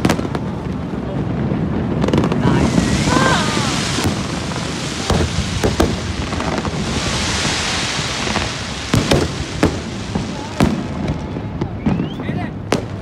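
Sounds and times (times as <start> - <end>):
continuous hiss and rumble: 0.0 - 13.0
firework shells bursting: 2.0 - 13.0.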